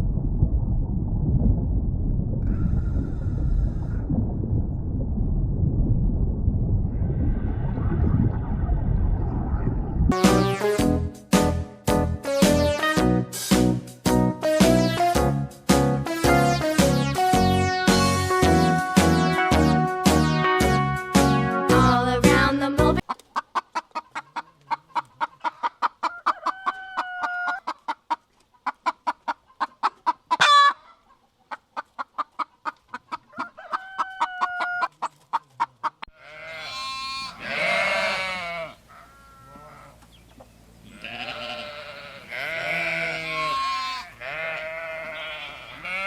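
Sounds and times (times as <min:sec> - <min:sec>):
hen clucking: 0:23.0 - 0:46.0
sheep bleating: 0:36.1 - 0:40.0, 0:40.9 - 0:46.0.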